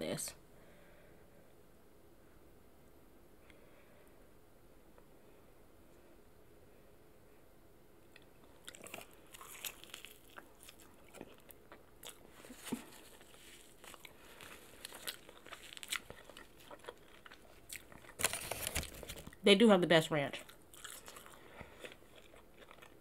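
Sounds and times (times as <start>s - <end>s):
chewing and crunching food: 8.0s - 19.4s, 20.3s - 23.0s.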